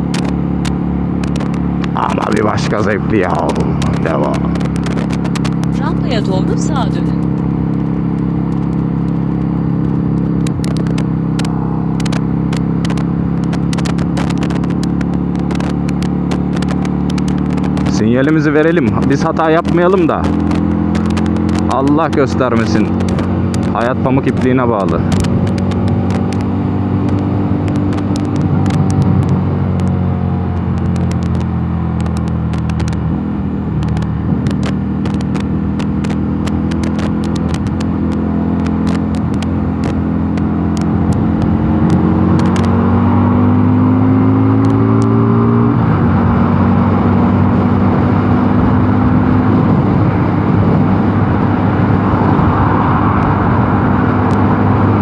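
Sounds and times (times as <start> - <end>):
motorcycle engine accelerating: 0.0 - 55.0
sharp clicks: 10.1 - 17.9, 18.6 - 24.5, 25.1 - 33.1, 33.7 - 42.8.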